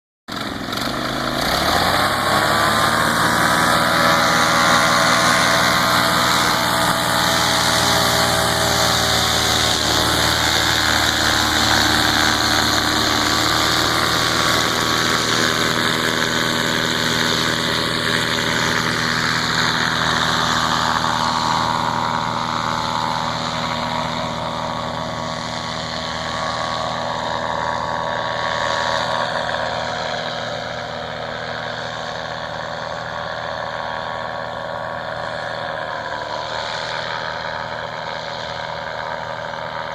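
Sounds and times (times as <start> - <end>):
paramotor engine running: 0.3 - 39.9.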